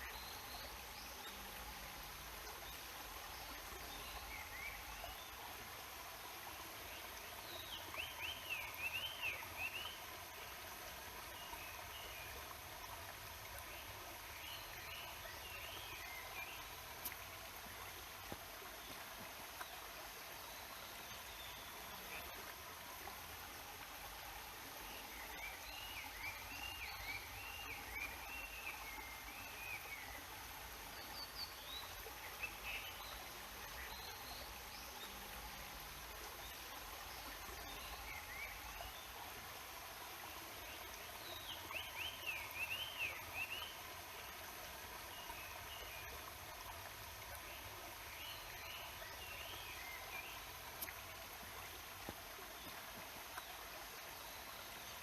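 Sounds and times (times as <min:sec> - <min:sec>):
waterfall and stream rushing: 0:00.0 - 0:55.0
songbird singing: 0:40.8 - 0:43.8.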